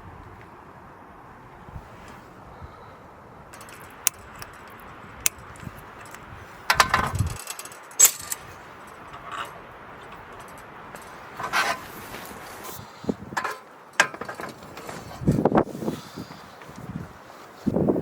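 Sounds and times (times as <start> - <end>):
steady low hiss: 0.0 - 18.0
jangling clatter: 3.6 - 4.8.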